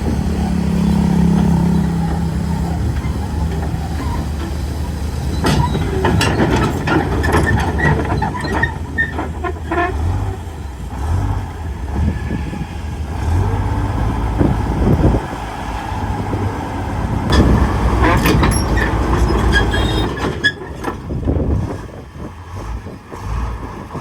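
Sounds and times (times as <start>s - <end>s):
metallic clanks and squeaks: 0.0s - 10.5s, 17.3s - 21.8s
diesel machinery running: 0.0s - 24.0s.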